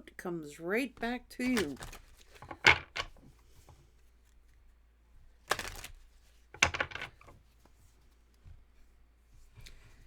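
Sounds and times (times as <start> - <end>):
cards rustling: 1.4 - 2.7, 5.4 - 6.3.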